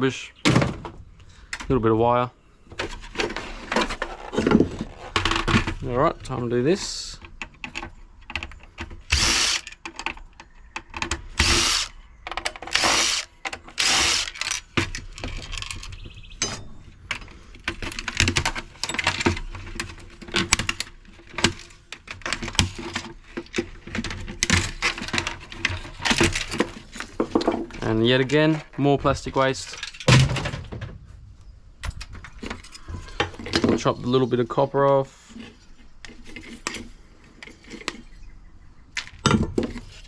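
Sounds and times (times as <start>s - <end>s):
clicks and knocks of parts: 1.4s - 1.8s, 2.7s - 27.9s, 29.5s - 31.0s
power drill driving out screws: 9.1s - 9.8s, 11.3s - 12.0s, 12.6s - 14.8s.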